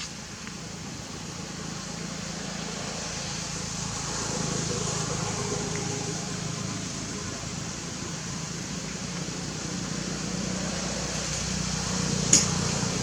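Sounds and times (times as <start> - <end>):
background rumble and hiss: 0.0 - 13.0
faint hum: 0.0 - 13.0.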